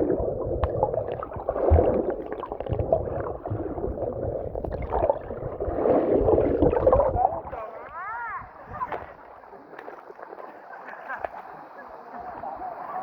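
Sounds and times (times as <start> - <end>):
low underwater thumps: 0.0 - 7.6
underwater gurgling rush: 0.0 - 10.4.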